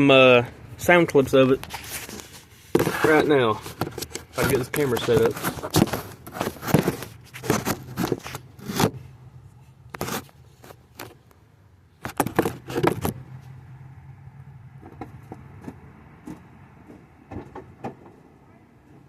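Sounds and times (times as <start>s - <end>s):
camera handling knocks and scrapes: 1.6s - 9.1s, 9.9s - 11.2s, 12.0s - 13.2s.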